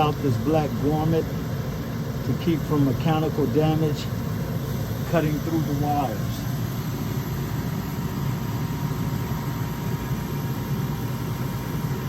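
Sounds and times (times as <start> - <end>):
faint steady whine: 0.0 - 12.0
gas furnace humming: 0.0 - 12.0.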